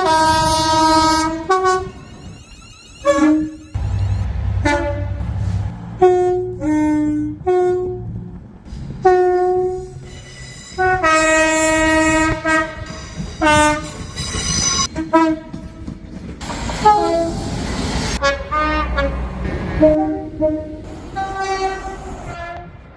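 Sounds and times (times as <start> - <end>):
train horn blasts: 0.0 - 8.2, 9.0 - 10.1, 10.7 - 14.0, 14.6 - 15.8, 16.8 - 17.5, 18.2 - 22.9
rushing noise: 3.7 - 9.1
low rumble: 3.8 - 9.1.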